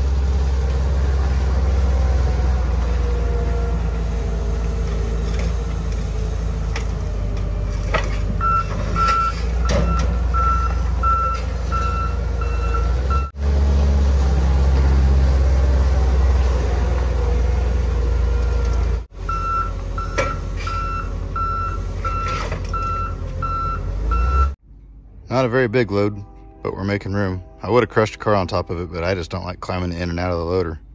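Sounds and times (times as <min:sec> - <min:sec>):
loader engine running: 0:00.0 - 0:26.5
reversing alarm beeping: 0:08.4 - 0:13.4, 0:19.3 - 0:24.6.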